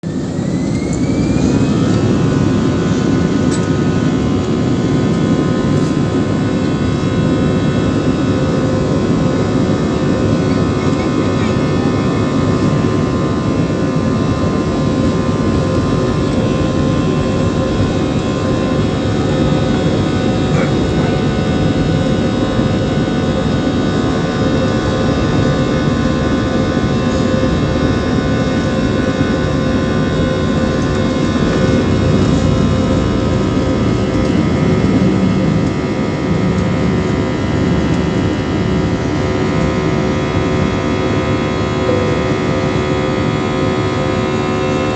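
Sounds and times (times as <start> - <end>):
jet engines running: 0.0 - 44.9.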